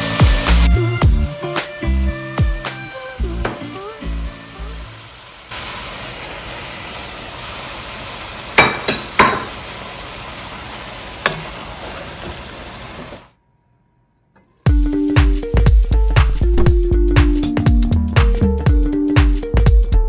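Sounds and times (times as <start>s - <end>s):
food sizzling in a pan: 0.0s - 0.8s, 1.4s - 13.3s
utensil clinking against cookware: 8.6s - 9.6s.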